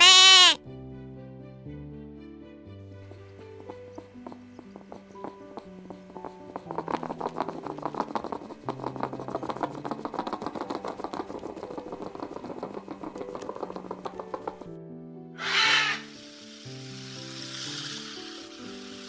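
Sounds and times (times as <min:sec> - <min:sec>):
soft background music: 0:00.0 - 0:19.0
rapid irregular clicking: 0:03.0 - 0:14.7, 0:16.0 - 0:19.0.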